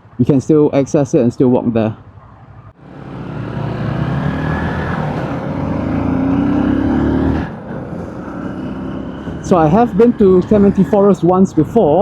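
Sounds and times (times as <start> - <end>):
road noise: 0.0 - 12.0
motorcycle engine accelerating: 2.8 - 12.0.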